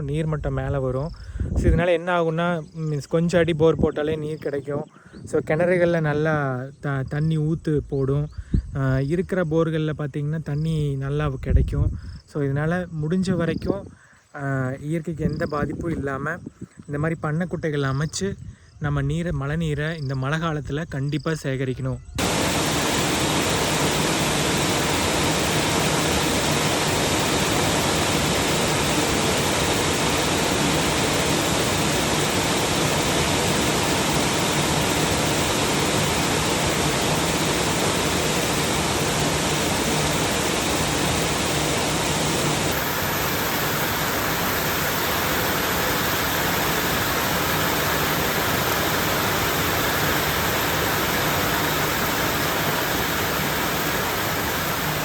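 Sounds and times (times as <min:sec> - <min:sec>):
heavy rain pouring: 0:22.2 - 0:55.0.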